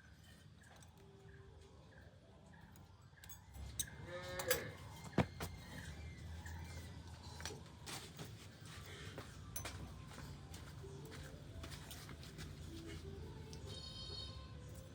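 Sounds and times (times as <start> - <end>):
farm animal call: 3.9 - 5.0.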